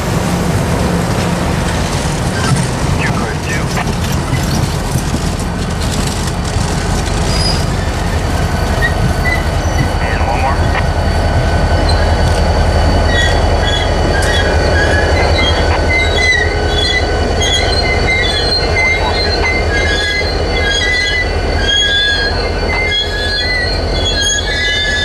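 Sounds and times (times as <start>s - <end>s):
locomotive engine rumbling: 0.0s - 25.0s
wheels squealing on rail: 7.1s - 25.0s.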